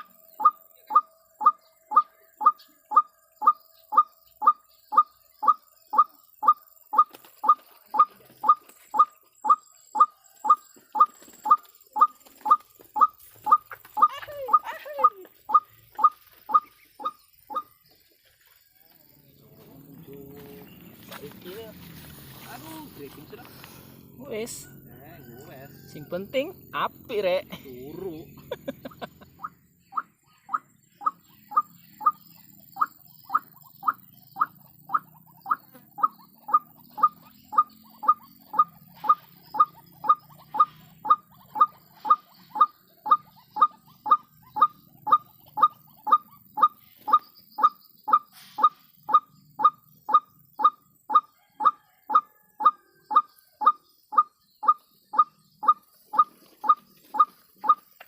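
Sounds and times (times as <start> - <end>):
waterhen calling: 0.0 - 17.8, 28.8 - 57.9.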